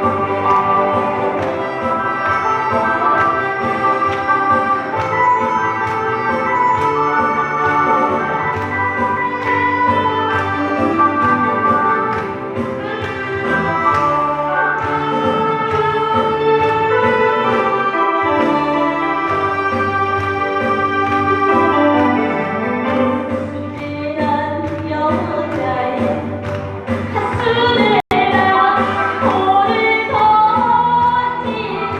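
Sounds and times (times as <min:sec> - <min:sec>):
woman singing: 0:00.0 - 0:05.1, 0:23.3 - 0:31.9
band accompaniment: 0:00.0 - 0:31.9.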